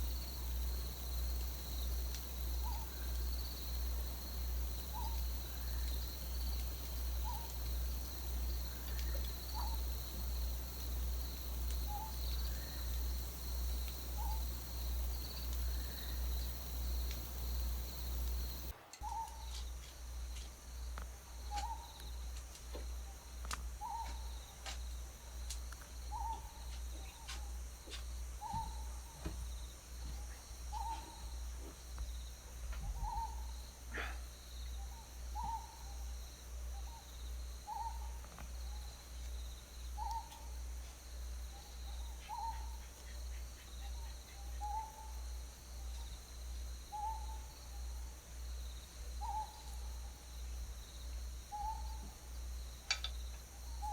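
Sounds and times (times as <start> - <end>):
owl hooting: 0.0 - 19.4
faint high insect-like tone: 0.0 - 53.9.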